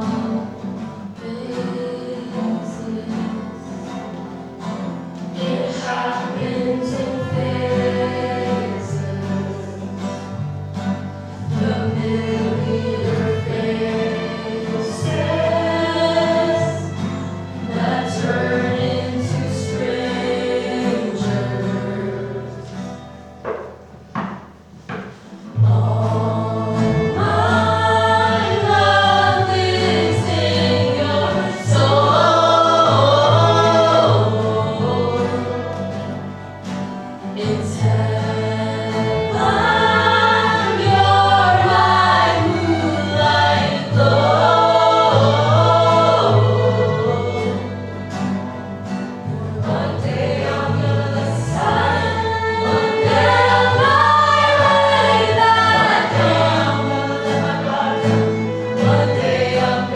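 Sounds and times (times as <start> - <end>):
vocal ensemble singing in harmony: 0.0 - 59.9
sustained low bass notes: 25.5 - 59.9.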